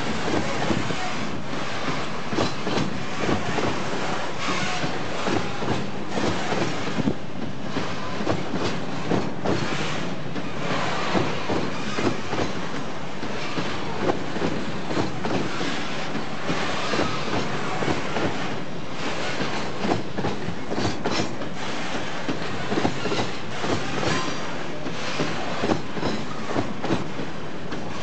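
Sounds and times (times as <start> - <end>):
train rumble: 0.0 - 28.0
train wheels clattering: 0.0 - 28.0.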